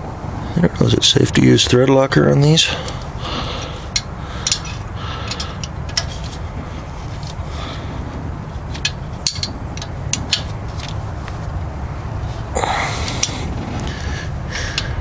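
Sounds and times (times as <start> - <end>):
steady low rumble: 0.0 - 15.0
wrench clicking on metal bolts: 3.6 - 6.4, 8.7 - 11.0.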